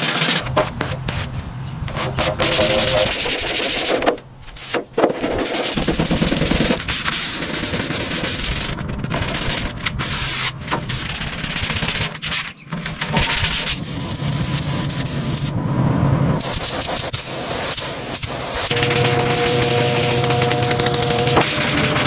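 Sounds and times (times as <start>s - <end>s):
abrasive rubbing noise: 0.0s - 4.0s, 16.4s - 22.0s.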